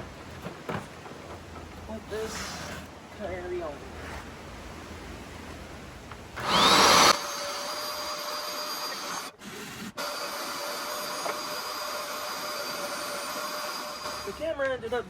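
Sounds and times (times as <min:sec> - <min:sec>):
carpet cleaner running: 0:06.4 - 0:07.3.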